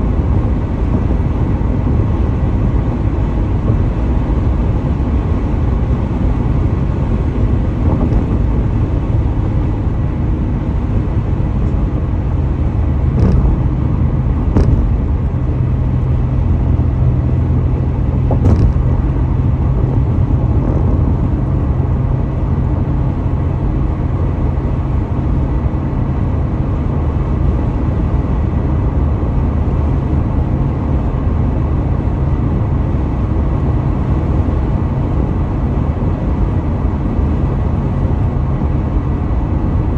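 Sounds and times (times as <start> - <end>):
car road and engine rumble: 0.0 - 39.9
short thumps: 7.8 - 8.6, 13.1 - 16.3, 17.8 - 21.0.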